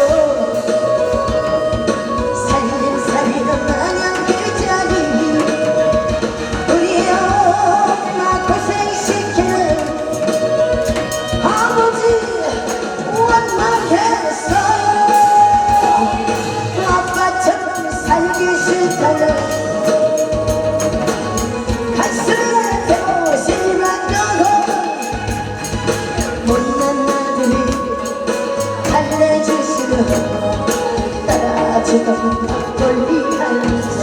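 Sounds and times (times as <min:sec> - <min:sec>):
loud backing track with beat: 0:00.0 - 0:34.0
person singing live: 0:00.0 - 0:34.0
tambourine: 0:09.0 - 0:31.6.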